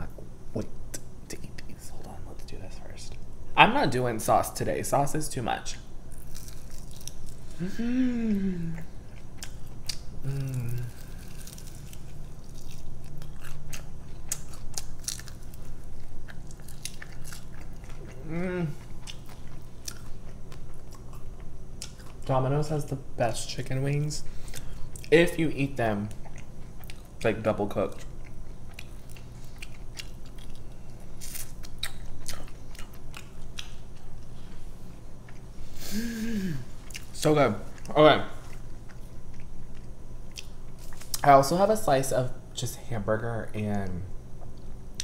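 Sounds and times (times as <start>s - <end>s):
person chewing crunchy food: 6.1s - 7.6s, 8.7s - 22.2s, 28.0s - 34.3s.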